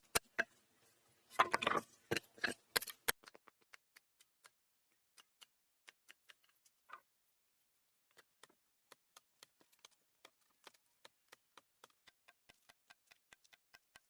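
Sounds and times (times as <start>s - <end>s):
faint clicks and taps: 8.1s - 14.0s.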